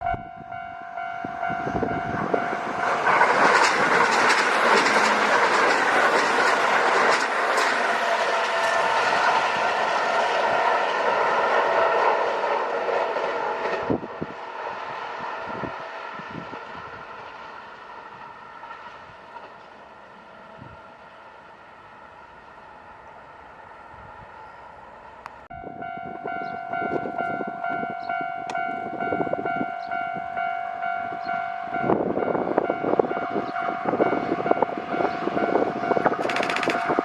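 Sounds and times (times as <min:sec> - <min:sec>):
level-crossing bell ringing: 0:00.0 - 0:03.0, 0:25.6 - 0:37.0
electric train passing: 0:00.0 - 0:37.0
wheels clacking over rail joints: 0:02.4 - 0:10.5, 0:35.4 - 0:37.0.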